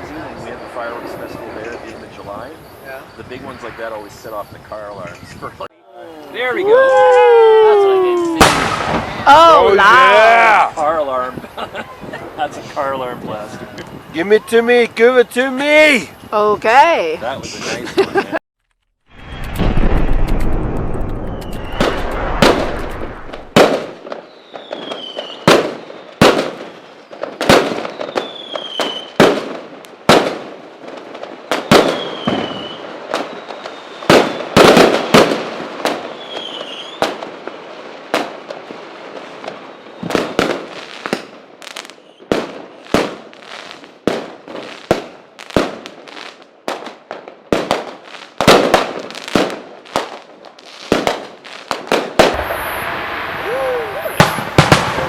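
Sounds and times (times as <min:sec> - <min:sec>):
fireworks crackling: 0:00.0 - 0:05.6, 0:06.2 - 0:18.3, 0:19.1 - 0:55.0
fireworks bangs: 0:06.4 - 0:16.1, 0:19.1 - 0:55.0
short falling whistles: 0:21.2 - 0:22.2.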